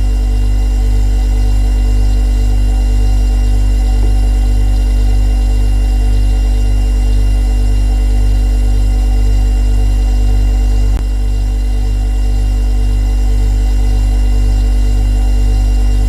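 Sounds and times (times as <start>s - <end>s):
refrigerator compressor humming: 0.0s - 16.0s
faint steady whine: 14.5s - 16.0s.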